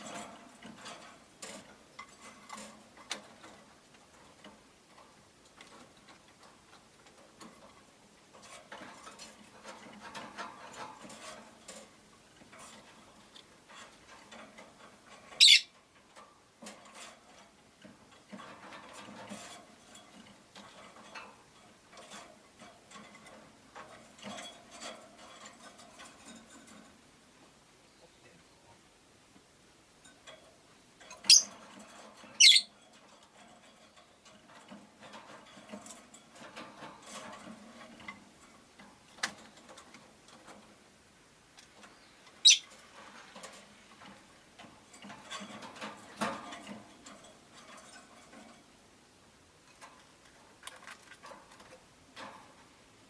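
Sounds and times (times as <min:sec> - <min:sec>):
faint clicks and rustles: 0:00.0 - 0:53.0
high-pitched bird chirp: 0:15.4 - 0:15.7, 0:31.3 - 0:31.5, 0:32.4 - 0:32.7, 0:42.4 - 0:42.6.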